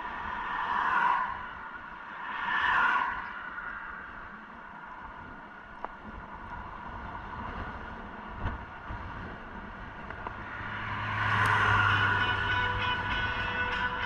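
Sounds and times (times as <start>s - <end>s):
motor vehicle passing by: 10.1s - 14.0s.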